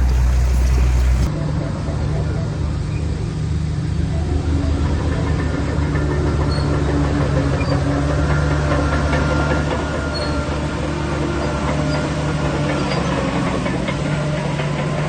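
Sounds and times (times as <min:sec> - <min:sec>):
bulldozer diesel engine running: 0:00.0 - 0:01.3.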